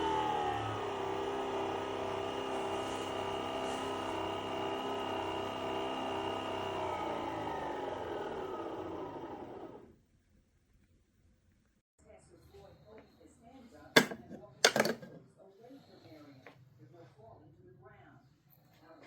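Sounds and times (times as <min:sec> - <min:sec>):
coffee machine motor whirring: 0:00.0 - 0:10.0.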